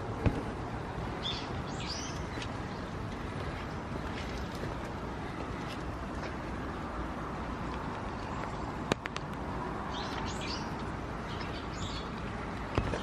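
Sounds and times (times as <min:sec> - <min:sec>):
steady background hum: 0:00.0 - 0:13.0
birds chirping: 0:01.1 - 0:05.8, 0:09.8 - 0:13.0.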